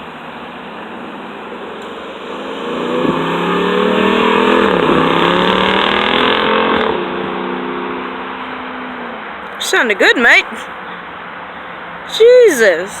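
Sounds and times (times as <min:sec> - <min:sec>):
engine accelerating hard: 0:00.0 - 0:09.5.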